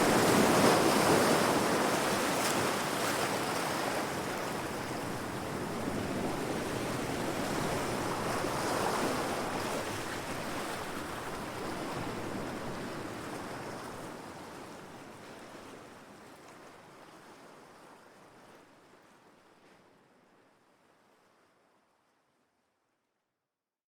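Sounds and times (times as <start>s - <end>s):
ocean waves crashing: 0.0s - 2.0s.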